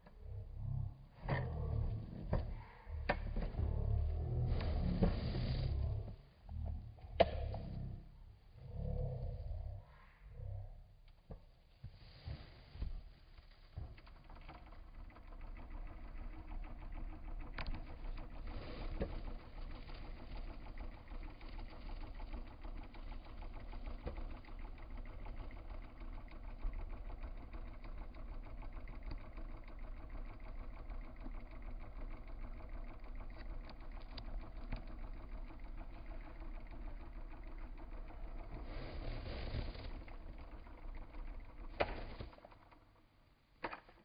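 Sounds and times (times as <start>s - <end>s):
electric fan running: 0.0s - 44.0s.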